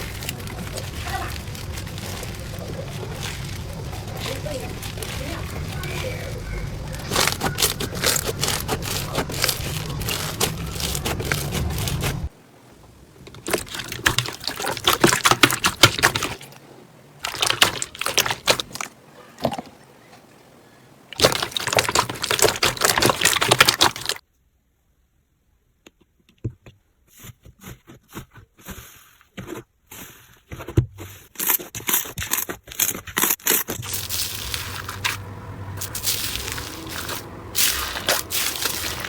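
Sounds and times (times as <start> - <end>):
slime squeezed crackling and popping: 0.0 - 12.3.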